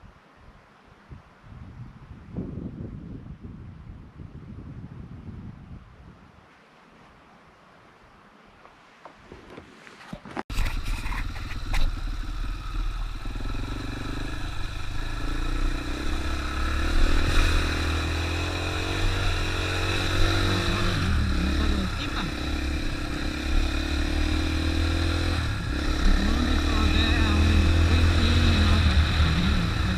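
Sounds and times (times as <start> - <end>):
dirt bike engine revving: 10.5 - 29.9.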